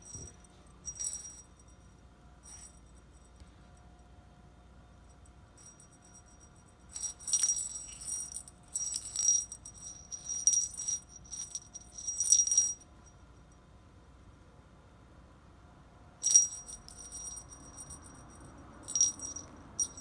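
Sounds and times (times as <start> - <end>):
small metal bell jingling: 0.0 - 3.4, 5.6 - 13.2, 16.2 - 20.0.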